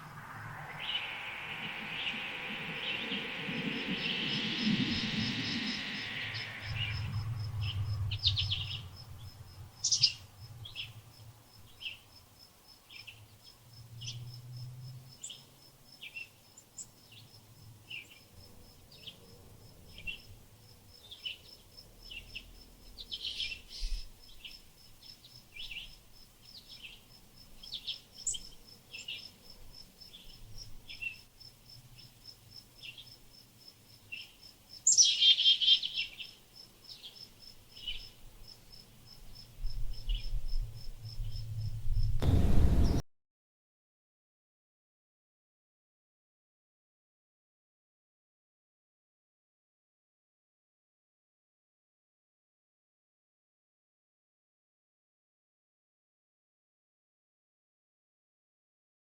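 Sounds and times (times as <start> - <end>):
high pulsing trill: 0.0 - 8.7
loud rushing noise: 0.0 - 9.0, 42.2 - 43.0
small birds chirping: 0.0 - 11.0, 11.6 - 12.1, 19.9 - 29.4, 32.8 - 33.2, 33.9 - 40.5.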